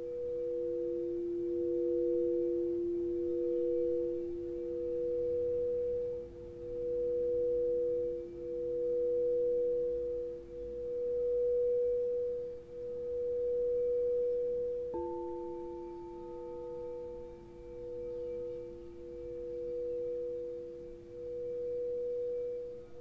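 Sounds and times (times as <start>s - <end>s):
singing bowls ringing: 0.0s - 23.0s
singing bowl struck: 14.9s - 23.0s.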